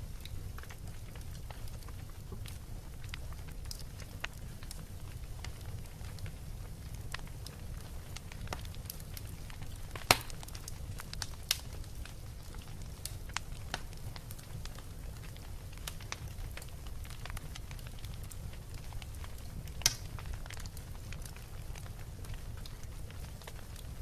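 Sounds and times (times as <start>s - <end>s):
bonfire crackling and popping: 0.0s - 24.0s
low rumble of fire: 0.0s - 24.0s.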